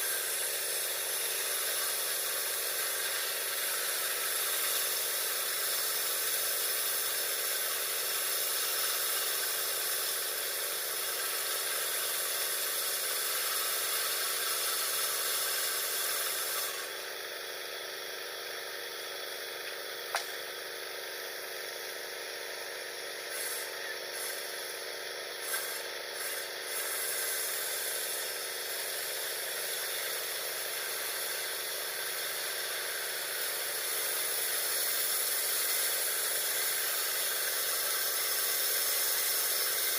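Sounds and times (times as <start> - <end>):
sawmill saw ripping wood: 0.0 - 16.9, 23.2 - 39.9
sharp click: 19.6 - 20.4.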